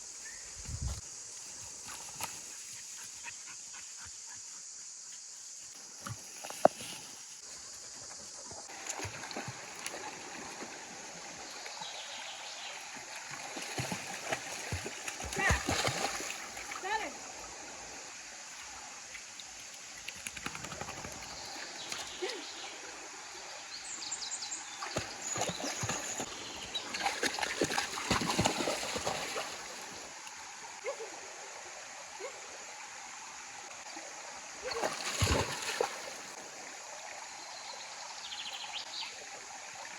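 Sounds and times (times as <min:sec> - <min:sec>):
splashing in water: 0:08.7 - 0:11.8, 0:12.8 - 0:17.5, 0:24.7 - 0:30.1, 0:34.6 - 0:36.5
stream water rushing: 0:08.7 - 0:39.9
stream rushing: 0:24.5 - 0:39.9.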